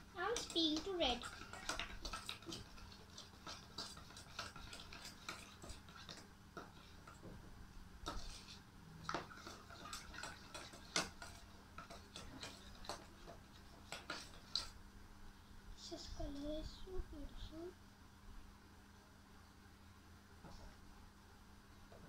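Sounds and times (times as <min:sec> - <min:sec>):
spoon scraping a bowl: 0:00.3 - 0:07.2, 0:08.0 - 0:14.7.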